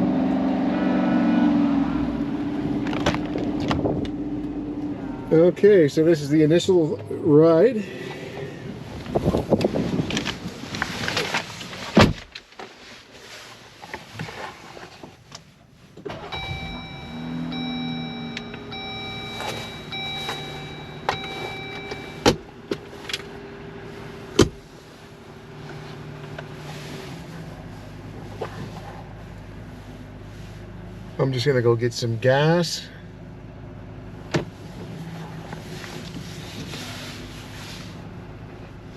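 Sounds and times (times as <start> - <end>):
car engine starting and idling: 0.0 - 12.7, 13.5 - 38.9
car door shutting: 2.8 - 4.2, 11.9 - 12.4, 16.0 - 23.3, 24.3 - 24.7, 34.3 - 34.9
handling noises: 9.0 - 30.7
electronic warning tones: 16.3 - 22.3.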